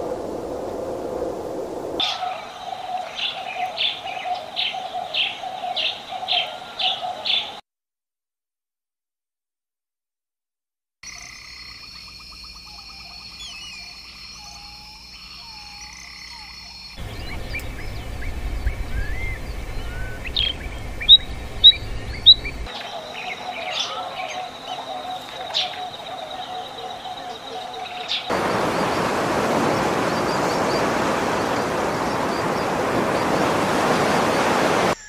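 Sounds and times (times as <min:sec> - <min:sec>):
frogs trilling: 0:02.0 - 0:07.6, 0:11.1 - 0:35.0
birds chirping and whistling: 0:12.7 - 0:14.8, 0:17.0 - 0:29.0, 0:34.3 - 0:35.0
low rumble: 0:17.0 - 0:22.7
loud sharp bird notes: 0:17.0 - 0:33.3.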